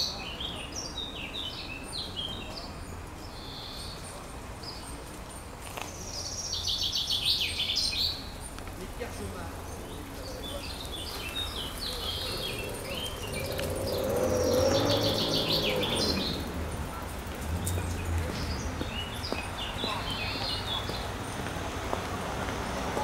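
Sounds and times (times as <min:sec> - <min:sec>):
small birds chirping: 0:00.0 - 0:23.0
loud droning sound: 0:12.1 - 0:16.8.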